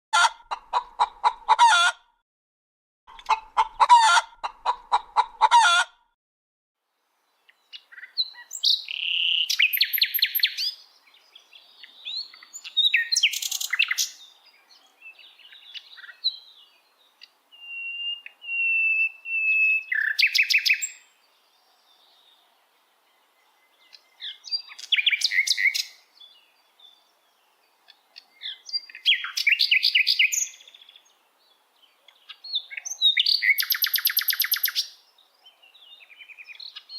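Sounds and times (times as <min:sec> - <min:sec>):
hens clucking: 0:00.2 - 0:02.0, 0:03.1 - 0:06.0
small birds chirping: 0:07.0 - 0:36.9.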